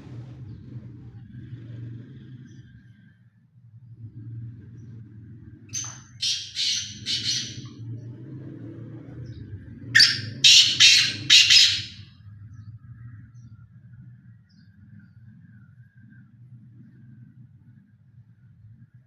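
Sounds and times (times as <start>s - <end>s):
partridge calling: 5.7s - 7.7s, 10.0s - 12.0s.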